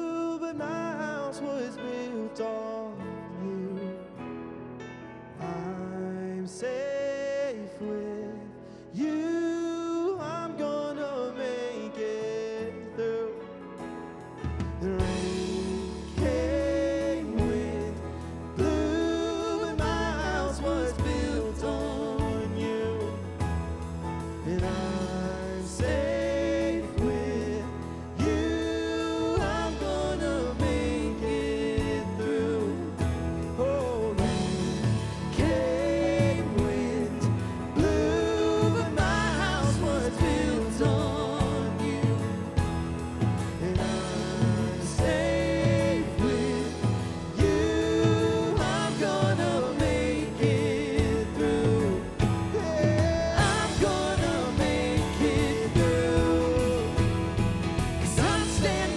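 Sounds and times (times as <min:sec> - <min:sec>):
live band playing: 0:13.7 - 0:58.9
person singing: 0:14.8 - 0:58.9.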